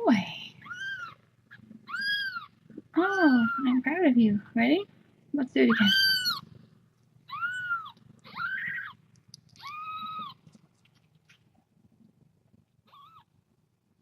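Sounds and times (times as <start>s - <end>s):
kitten mewing: 0.6s - 3.7s, 5.7s - 6.5s, 7.3s - 10.5s.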